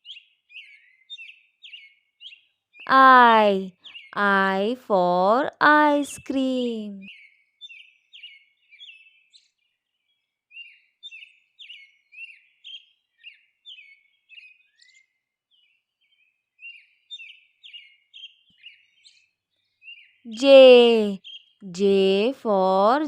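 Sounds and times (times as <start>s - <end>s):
small bird chirping: 0.0s - 2.6s, 21.2s - 21.6s.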